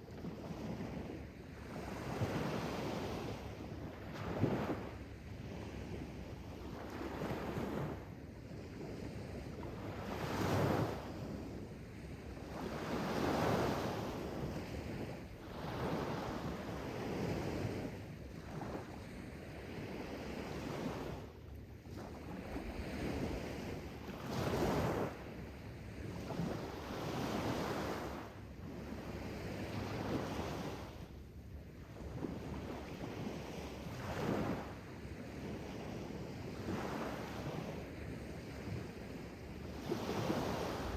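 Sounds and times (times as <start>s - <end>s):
sea waves breaking: 39.8s - 40.9s.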